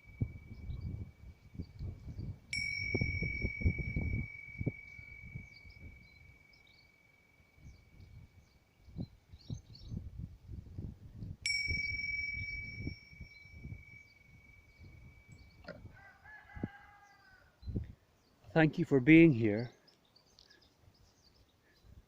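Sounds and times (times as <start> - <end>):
bell-like chime ringing: 2.5 - 8.4, 11.5 - 15.7.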